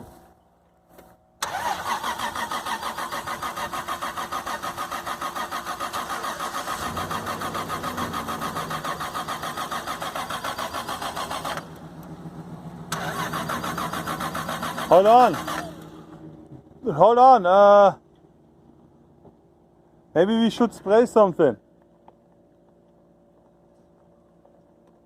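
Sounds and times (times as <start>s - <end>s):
starter cranking engine: 1.4s - 12.2s, 12.9s - 16.2s.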